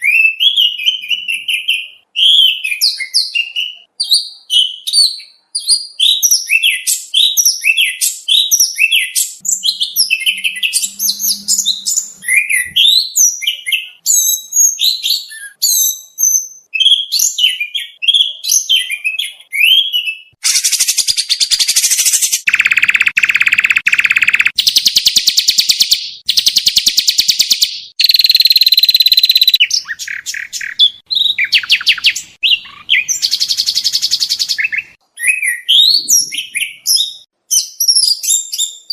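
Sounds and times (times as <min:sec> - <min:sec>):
bird chirps and whistles: 0:00.0 - 0:38.9
buzzy rattling bird trills: 0:20.5 - 0:30.8.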